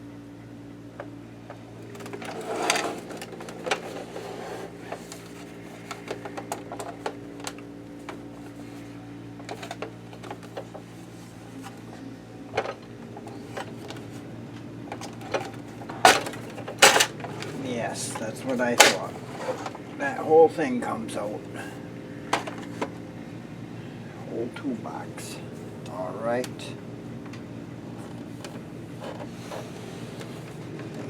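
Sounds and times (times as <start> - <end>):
steady low hum: 0.0 - 31.0
hard plastic parts clicking: 4.9 - 8.6, 14.9 - 19.8, 22.3 - 23.0.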